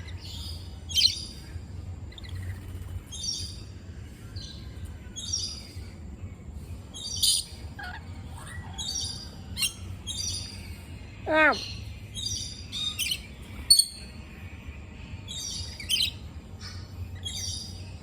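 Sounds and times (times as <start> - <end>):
parrots calling: 0.0 - 1.4, 2.1 - 3.6, 7.0 - 14.1, 15.3 - 18.0.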